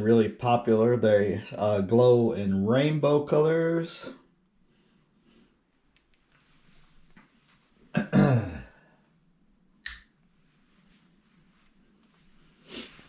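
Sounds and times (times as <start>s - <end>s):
low throat sound: 8.0s - 8.8s
sharp snap: 9.8s - 10.2s.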